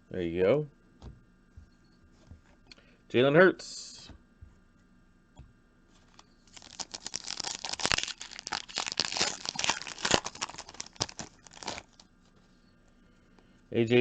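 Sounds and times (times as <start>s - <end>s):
wrapper tearing and crinkling: 6.1s - 12.1s.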